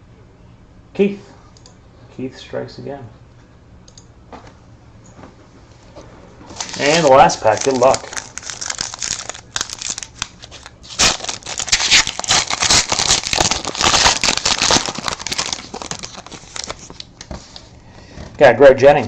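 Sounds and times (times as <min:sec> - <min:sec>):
wrapper tearing and crinkling: 0:06.5 - 0:17.6.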